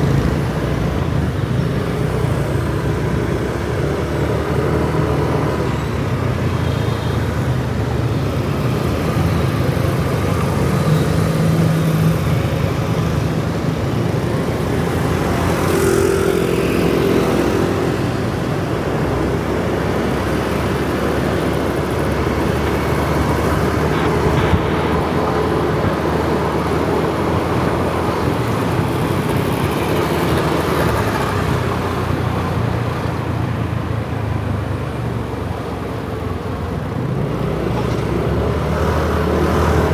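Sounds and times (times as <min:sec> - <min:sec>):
other motorbikes humming: 0:00.0 - 0:39.9
wind noise: 0:19.7 - 0:32.4.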